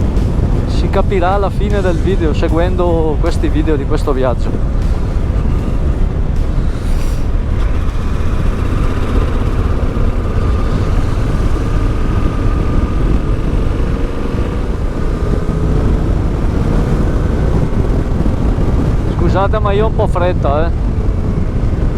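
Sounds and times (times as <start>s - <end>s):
motorcycle engine cruising: 0.0s - 21.9s
wind rushing over microphone: 0.0s - 21.9s.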